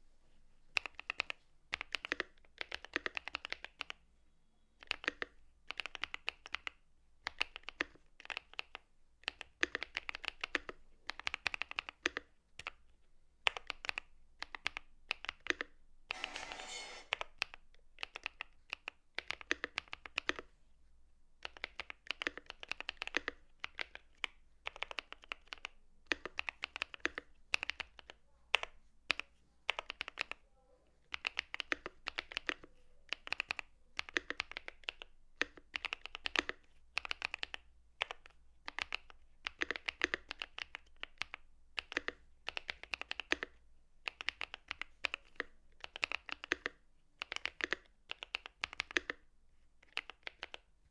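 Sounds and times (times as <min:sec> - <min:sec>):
mechanical keyboard typing: 0:00.8 - 0:04.0, 0:04.8 - 0:12.7, 0:21.4 - 0:28.1, 0:31.1 - 0:49.2, 0:49.8 - 0:50.7.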